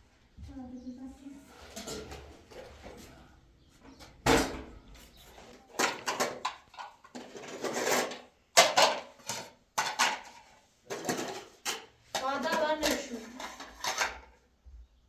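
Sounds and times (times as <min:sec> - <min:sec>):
sharp knocks and clatters: 0:03.9 - 0:14.4.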